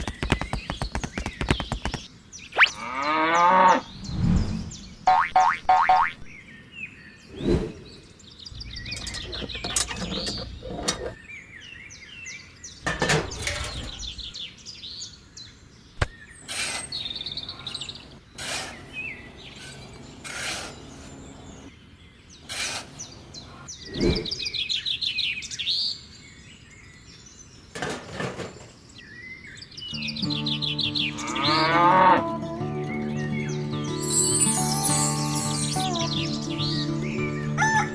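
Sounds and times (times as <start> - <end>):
birds chirping: 0.0 - 37.9
music: 30.0 - 37.9.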